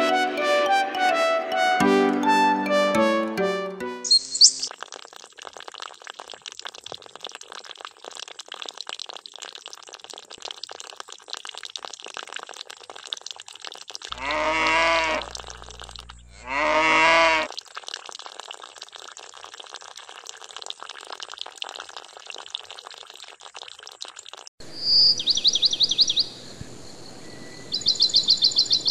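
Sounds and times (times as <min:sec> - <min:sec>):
water pouring into trough: 0:04.7 - 0:24.5
cow mooing: 0:14.1 - 0:17.5.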